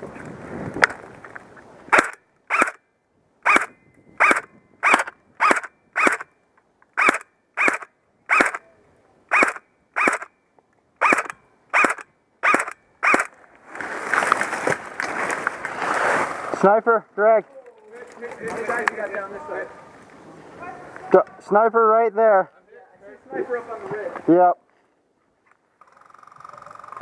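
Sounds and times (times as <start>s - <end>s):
airsoft rifle firing: 1.9s - 2.8s, 7.0s - 8.6s, 9.3s - 10.3s, 11.0s - 13.3s.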